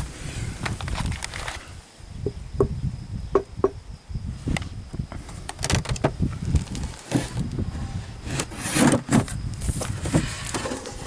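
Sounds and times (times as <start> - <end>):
wood knocking and clicking: 2.2 - 3.8, 5.5 - 6.2.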